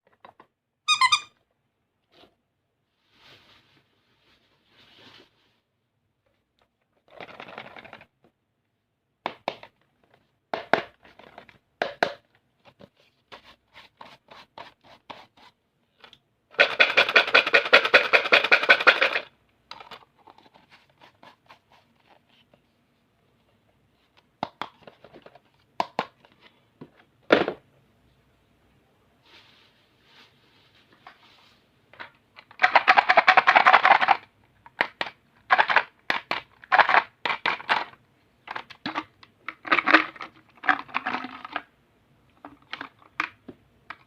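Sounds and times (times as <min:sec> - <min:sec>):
stationery being handled: 0:06.7 - 0:08.2, 0:09.3 - 0:22.7, 0:23.4 - 0:27.6, 0:29.3 - 0:41.7.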